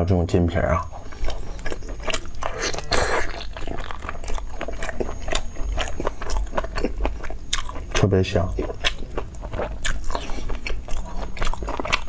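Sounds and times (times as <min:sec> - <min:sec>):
mouth chewing beef: 0:00.8 - 0:12.0.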